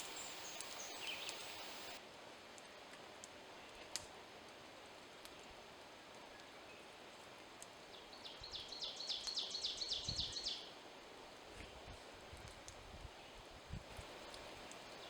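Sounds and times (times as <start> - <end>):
songbird singing high notes: 0.0 - 2.0
quiet woodland background: 0.0 - 15.0.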